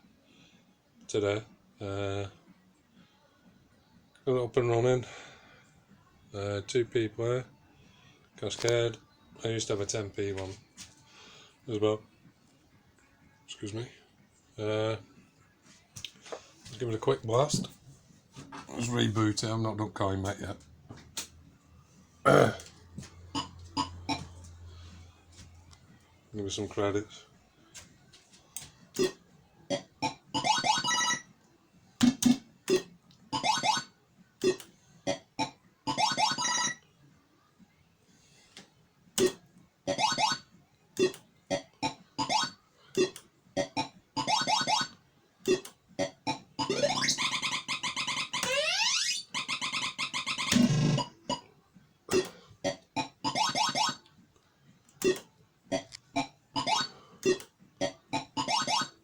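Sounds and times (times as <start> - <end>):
rising electronic beeps: 46.6 - 51.1.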